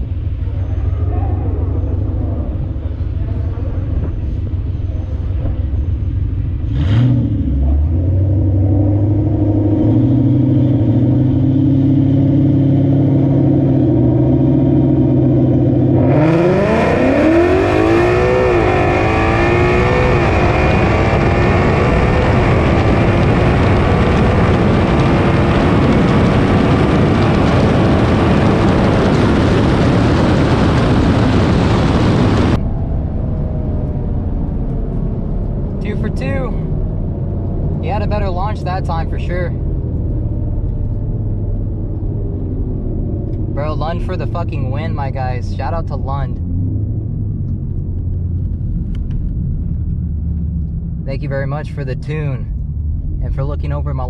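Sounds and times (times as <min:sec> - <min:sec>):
car engine revving and accelerating: 0:00.0 - 0:54.0.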